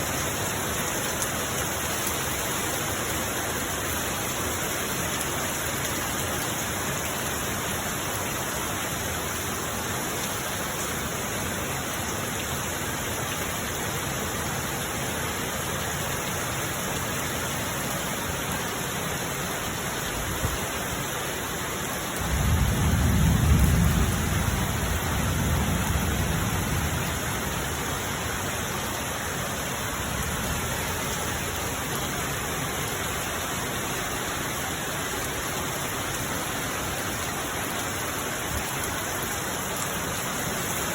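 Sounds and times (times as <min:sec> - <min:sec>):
heavy rain pouring: 0:00.0 - 0:40.9
thunder rumbling: 0:22.2 - 0:27.8.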